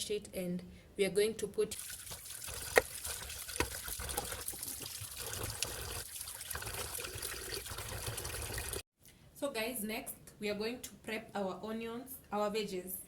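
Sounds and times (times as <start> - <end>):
water trickling and pouring: 1.7 - 8.8.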